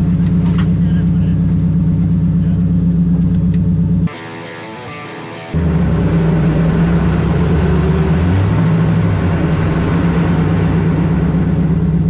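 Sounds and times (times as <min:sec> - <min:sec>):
car engine revving hard: 0:05.6 - 0:12.0.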